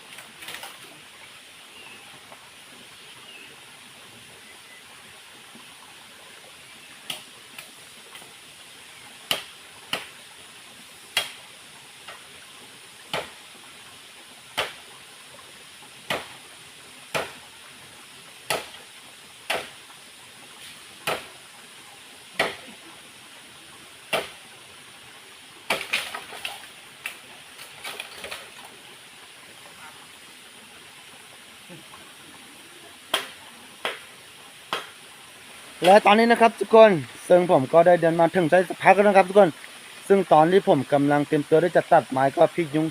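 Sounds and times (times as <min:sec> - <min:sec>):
waterfall rushing: 0:00.0 - 0:42.9
blade chopping wood: 0:09.3 - 0:10.1, 0:11.1 - 0:11.4, 0:13.1 - 0:13.4, 0:14.5 - 0:14.8, 0:16.0 - 0:16.3, 0:17.1 - 0:17.4, 0:18.5 - 0:18.8, 0:19.5 - 0:19.8, 0:21.0 - 0:21.3, 0:22.4 - 0:22.6, 0:24.1 - 0:24.4, 0:25.7 - 0:26.6, 0:33.1 - 0:34.0, 0:34.7 - 0:35.0.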